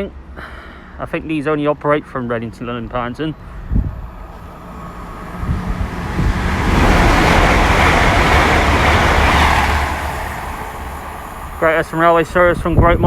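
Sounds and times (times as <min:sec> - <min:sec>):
train rushing past: 0:03.3 - 0:13.0
low rumble: 0:03.5 - 0:13.0.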